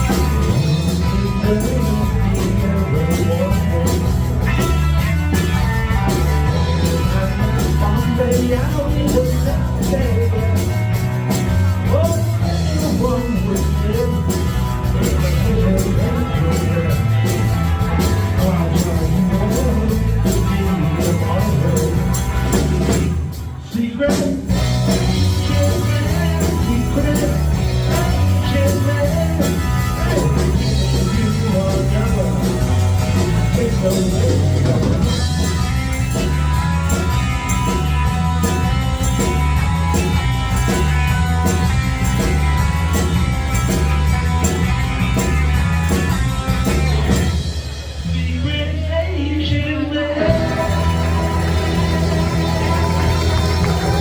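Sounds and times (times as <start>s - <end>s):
bass line: 0.0s - 54.0s
live rock band playing: 0.0s - 54.0s
drum beat: 50.3s - 54.0s.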